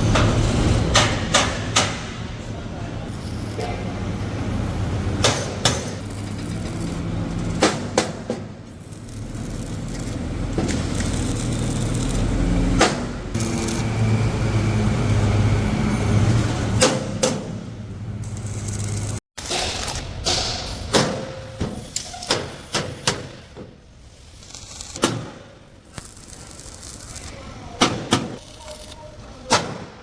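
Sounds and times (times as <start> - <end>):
sharp metallic knocks: 19.4 - 26.4, 27.0 - 30.0.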